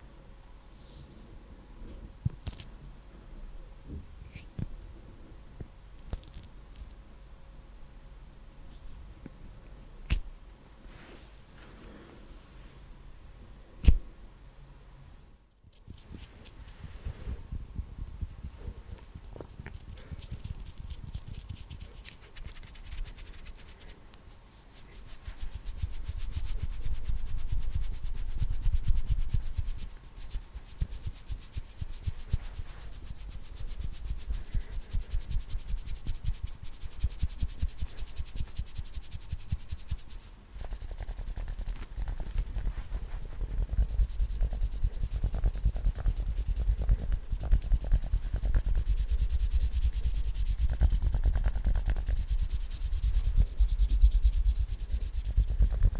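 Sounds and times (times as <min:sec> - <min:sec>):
hands rubbing together: 0:15.8 - 0:55.9.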